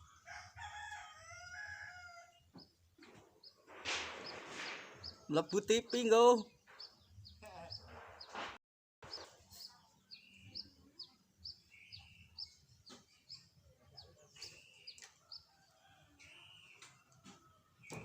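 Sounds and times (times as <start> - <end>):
faint bird chirping: 9.1 - 18.0.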